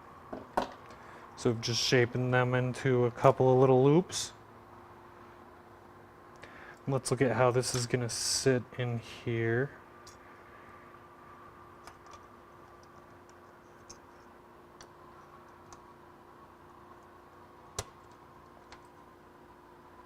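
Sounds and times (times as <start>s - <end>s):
faint steady hum: 0.0s - 20.0s
small clicks of wires handled: 10.0s - 10.2s.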